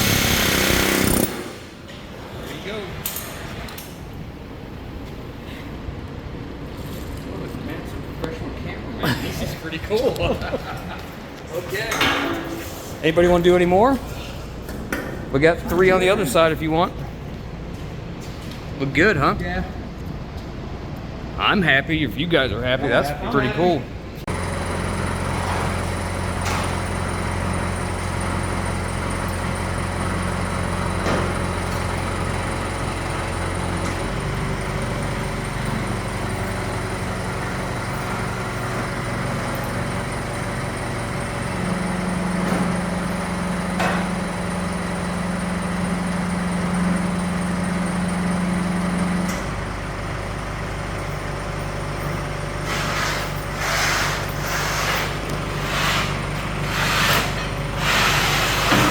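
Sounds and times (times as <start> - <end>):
motor humming: 0.0 - 1.8.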